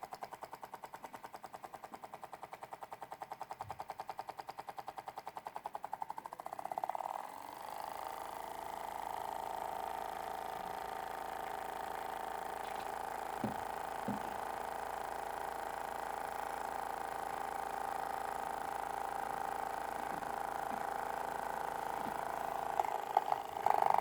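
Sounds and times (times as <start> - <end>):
small motor humming: 0.0 - 24.0
soft knocks: 12.6 - 14.4.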